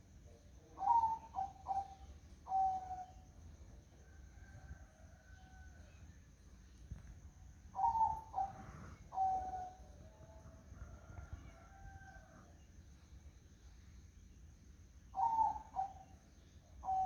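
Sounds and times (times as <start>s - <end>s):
dove cooing: 0.8s - 3.1s, 7.8s - 9.9s, 15.2s - 16.1s.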